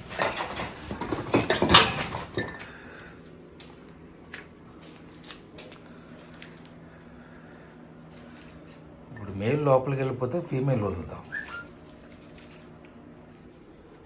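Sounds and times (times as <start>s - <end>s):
rattling metallic clatter: 0.0s - 2.7s.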